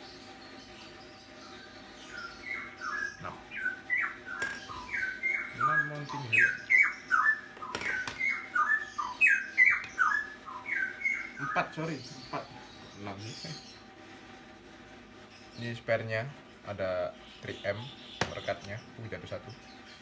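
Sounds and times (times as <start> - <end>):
bird calling falling notes: 2.1 - 11.7.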